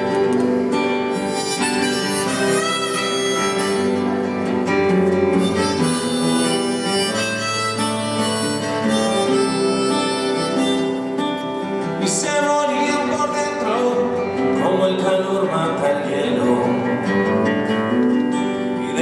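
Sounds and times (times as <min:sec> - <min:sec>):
harmonica melody: 0:00.0 - 0:14.4
acoustic guitar: 0:00.0 - 0:19.0.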